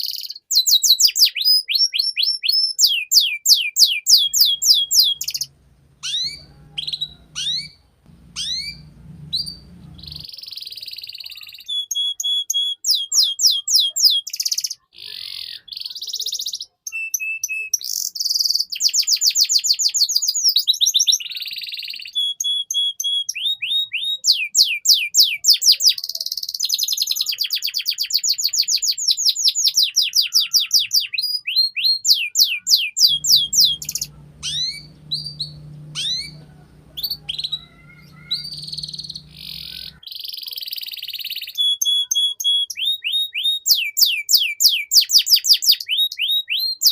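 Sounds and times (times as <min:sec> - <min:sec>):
canary singing trills: 0:00.0 - 0:12.2, 0:29.9 - 0:45.2
low hum: 0:04.4 - 0:10.3, 0:33.1 - 0:40.0.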